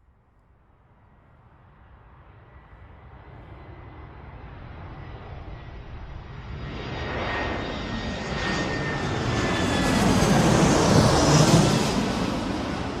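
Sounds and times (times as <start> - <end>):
jets flying past: 3.6 - 13.0.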